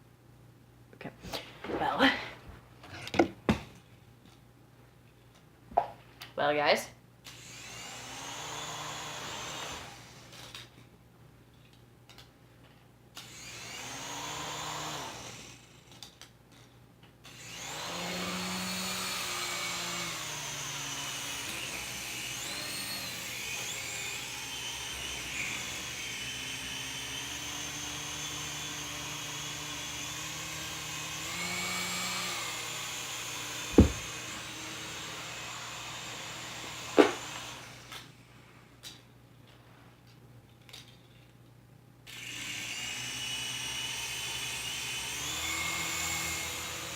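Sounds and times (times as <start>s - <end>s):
toy helicopter rotors whirring: 9.4s - 10.7s
sharp knock: 33.8s - 34.1s.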